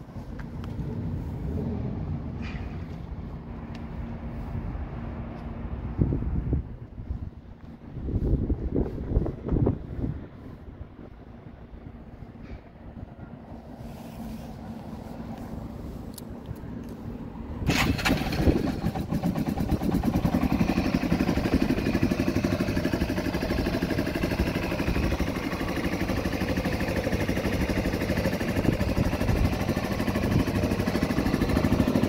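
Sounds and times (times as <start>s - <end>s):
motorcycle engine starting and idling: 14.2s - 32.0s.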